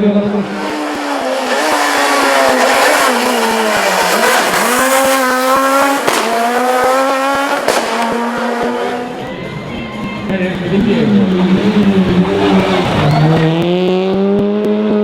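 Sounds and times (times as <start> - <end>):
rally car engine revving: 0.0 - 15.0
sharp cracks: 5.9 - 8.9.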